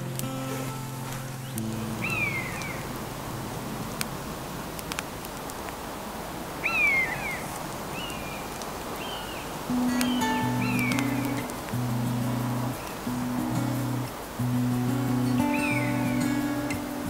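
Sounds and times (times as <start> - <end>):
outdoor hiss: 0.0 - 17.0
faint sharp clicks: 0.1 - 2.8, 3.9 - 5.8, 9.7 - 17.0
bird mewing call: 1.5 - 2.9, 6.6 - 8.2.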